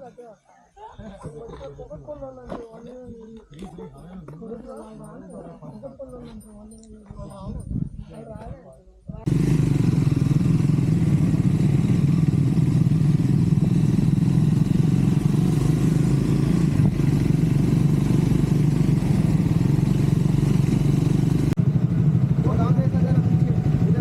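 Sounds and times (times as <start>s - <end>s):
motorcycle engine running: 9.3s - 24.0s.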